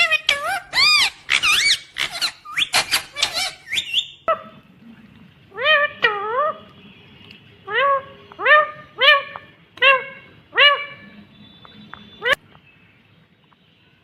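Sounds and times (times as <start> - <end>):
parrot shrill calls: 0.0 - 4.3.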